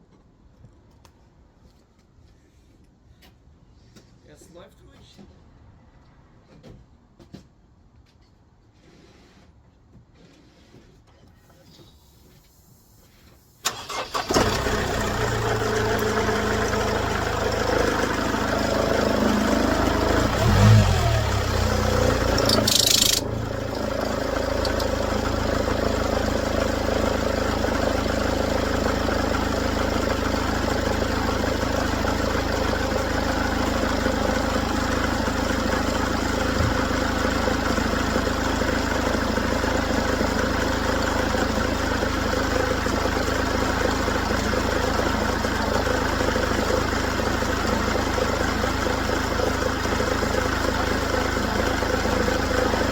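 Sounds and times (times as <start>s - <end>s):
car engine starting and idling: 13.6s - 52.9s.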